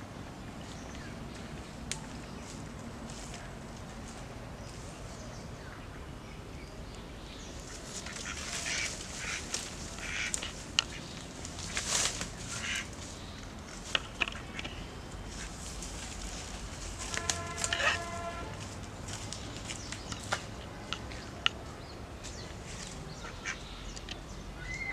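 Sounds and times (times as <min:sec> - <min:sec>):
duck quacking: 0:08.0 - 0:11.0, 0:12.5 - 0:12.9, 0:17.2 - 0:18.5.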